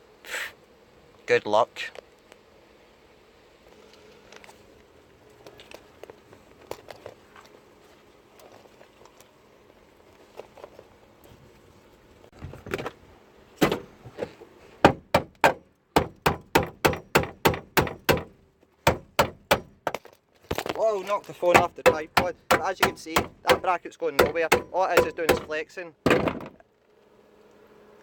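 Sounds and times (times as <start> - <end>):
knocks on metal bracket: 14.8 - 20.0, 21.5 - 26.6.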